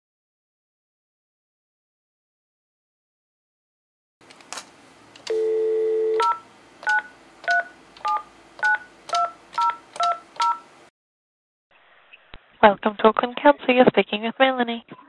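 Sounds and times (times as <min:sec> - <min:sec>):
telephone dial tone: 0:05.3 - 0:08.8
touch-tone keypress beeps: 0:05.3 - 0:10.6.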